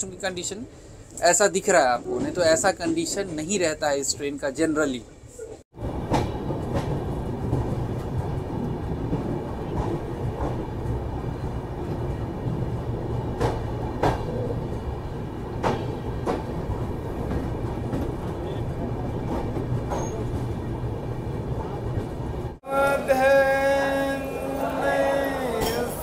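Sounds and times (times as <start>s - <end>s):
train wheels rumbling on track: 5.8s - 22.6s
wheels clacking over rail joints: 5.9s - 20.9s.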